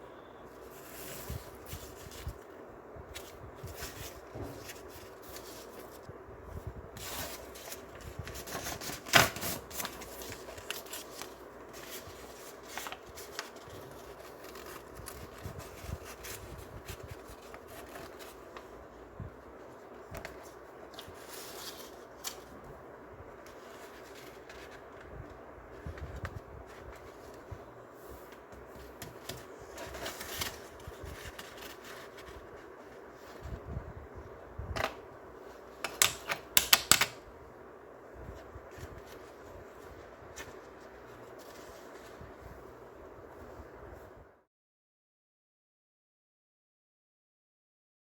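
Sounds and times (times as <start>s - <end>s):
paper folding and crinkling: 0.5s - 22.7s, 23.3s - 33.7s, 38.2s - 43.5s.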